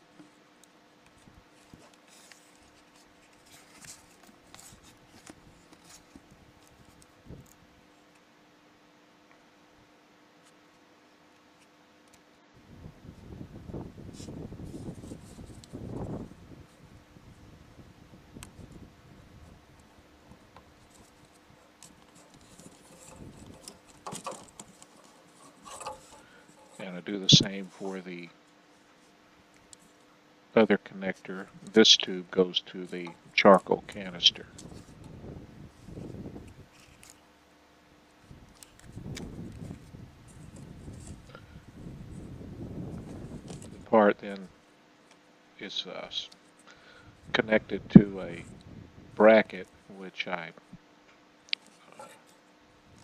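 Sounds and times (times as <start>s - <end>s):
low steady hum: 0.0s - 53.0s
small clicks and rustles: 0.1s - 8.3s, 19.4s - 26.9s, 28.4s - 30.1s, 32.9s - 37.4s, 38.2s - 41.5s, 42.1s - 43.8s, 50.6s - 53.0s.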